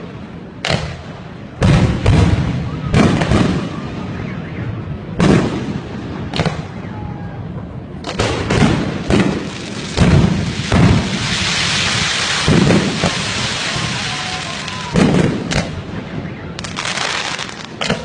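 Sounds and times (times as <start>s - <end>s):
fireworks bangs: 0.0s - 7.1s, 7.9s - 18.0s
rolling rumble: 0.0s - 18.0s.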